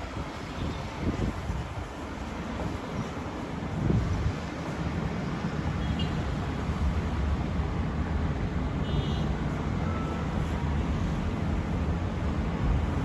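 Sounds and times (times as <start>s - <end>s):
wind rumbling on microphone: 0.0s - 5.0s
road traffic: 0.0s - 13.0s.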